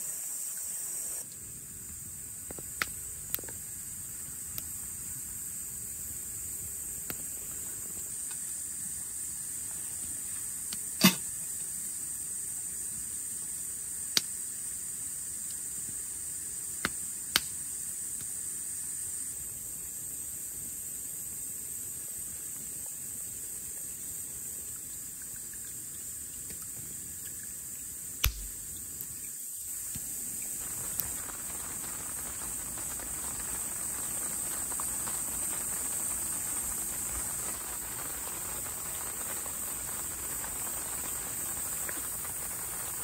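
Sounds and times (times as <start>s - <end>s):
rain falling on a tent: 1.2s - 18.3s, 27.9s - 43.0s
raindrops tapping fabric: 28.2s - 28.6s, 29.8s - 43.0s.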